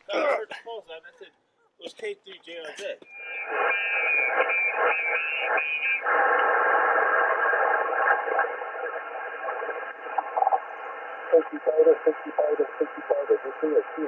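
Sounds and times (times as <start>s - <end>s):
radio static hiss: 2.8s - 14.0s
whistling heterodyne tones: 3.1s - 6.1s
warbling radio signal: 3.1s - 14.0s.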